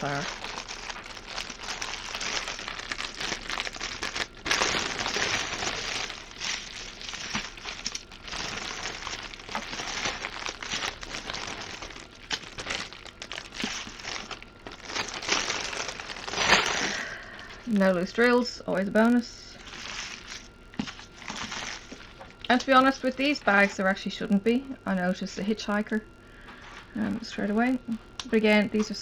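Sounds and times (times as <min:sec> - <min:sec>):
plastic bags crinkling: 0:00.0 - 0:18.2, 0:19.5 - 0:24.0.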